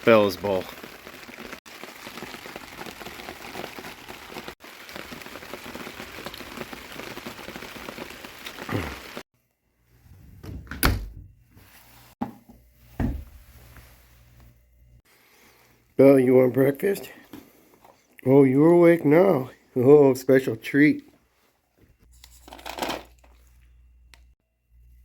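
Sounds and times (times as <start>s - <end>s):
rain hissing: 0.0s - 9.3s.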